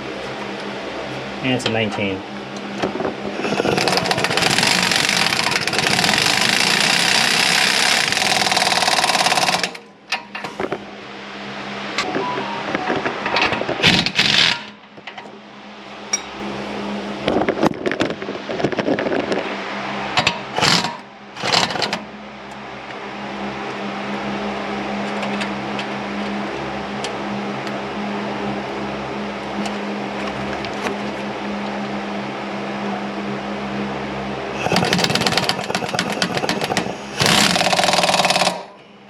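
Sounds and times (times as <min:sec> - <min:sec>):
steady hum: 0:00.0 - 0:39.0
hand tools clicking and rattling: 0:03.4 - 0:10.4, 0:34.6 - 0:38.8.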